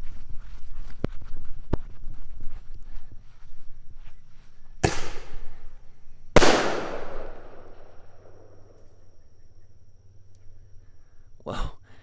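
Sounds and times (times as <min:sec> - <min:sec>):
firework bangs: 0:04.8 - 0:05.7, 0:06.4 - 0:08.7.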